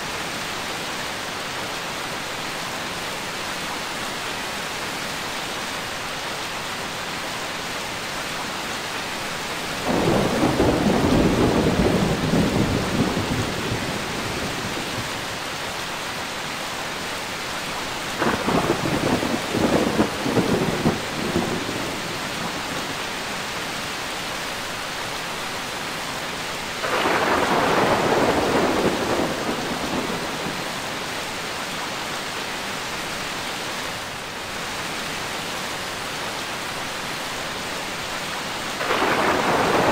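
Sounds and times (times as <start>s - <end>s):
steady rain: 0.0s - 39.9s
thunder rolling: 9.8s - 15.0s, 18.2s - 22.7s, 26.8s - 30.9s, 38.8s - 39.9s.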